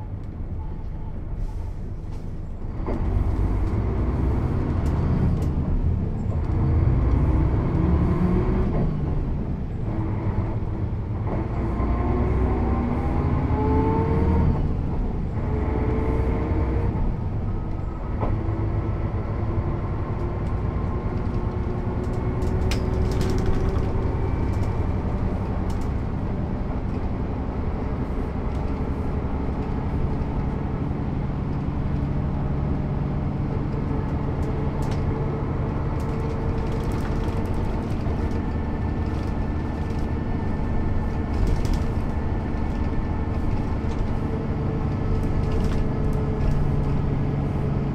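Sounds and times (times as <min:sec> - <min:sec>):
bus engine accelerating: 0:00.0 - 0:47.9
light rattles and clicks: 0:20.4 - 0:27.3, 0:33.6 - 0:47.6.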